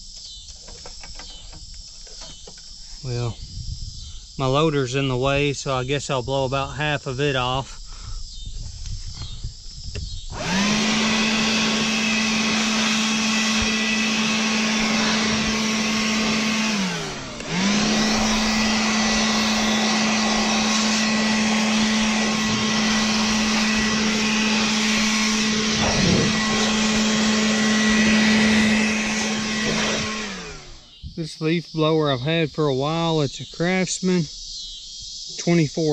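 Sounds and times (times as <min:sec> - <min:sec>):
cordless leaf blower whining: 0:07.2 - 0:31.5.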